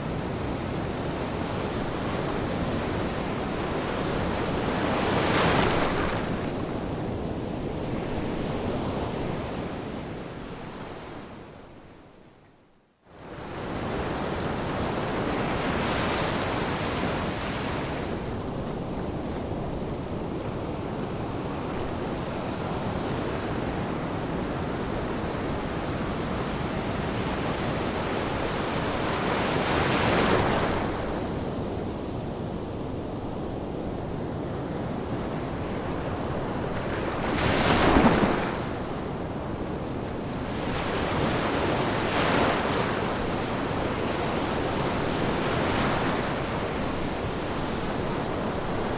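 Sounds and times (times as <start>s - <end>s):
ocean surf washing: 34.2s - 48.9s
waves breaking: 36.5s - 39.0s.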